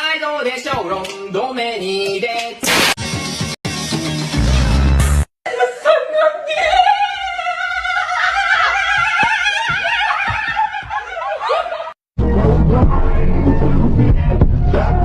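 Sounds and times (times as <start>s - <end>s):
dense music: 12.2s - 15.0s.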